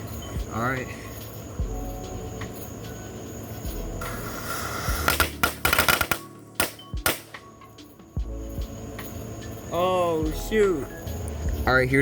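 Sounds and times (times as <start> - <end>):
firework hiss: 0.0 - 7.4
fireworks crackling pops: 4.0 - 7.5.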